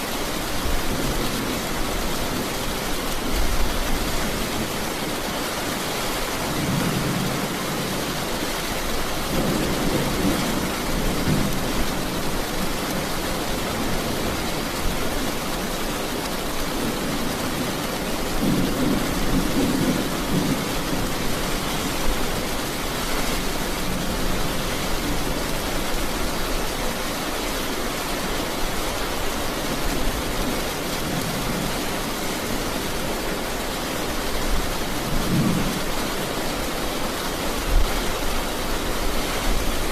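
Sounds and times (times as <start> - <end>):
steady rain: 0.0 - 39.9
thunder rumbling: 18.4 - 25.4.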